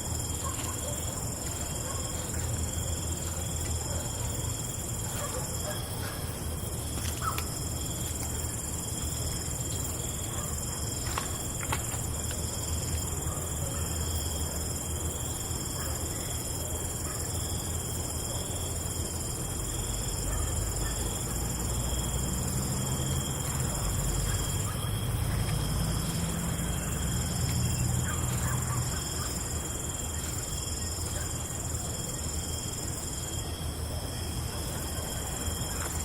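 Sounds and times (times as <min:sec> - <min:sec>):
crickets chirping: 0:00.0 - 0:36.0.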